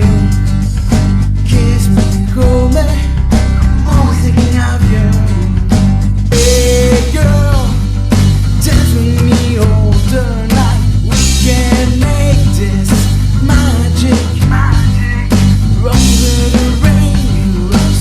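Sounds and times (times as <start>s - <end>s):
bass: 0.0s - 18.0s
drum kit: 0.0s - 18.0s
guitar: 0.0s - 18.0s
sliding lead melody: 0.0s - 18.0s.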